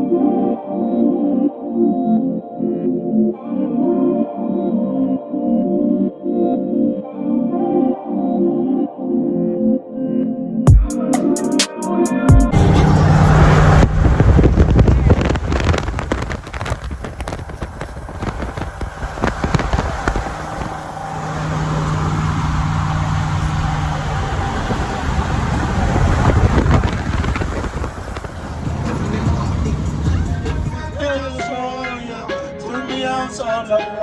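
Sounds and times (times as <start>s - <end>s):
car engine running loudly: 12.5s - 31.3s.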